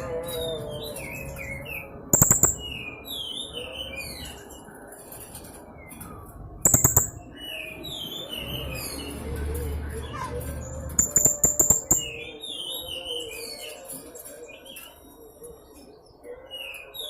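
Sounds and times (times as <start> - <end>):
shrill clicks: 2.2 - 2.7, 6.6 - 7.2, 11.0 - 12.2.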